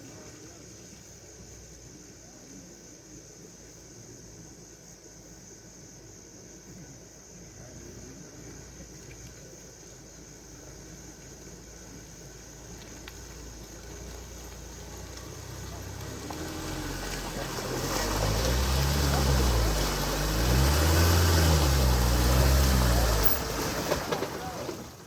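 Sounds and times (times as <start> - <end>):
vehicle engine revving: 13.8 - 25.0.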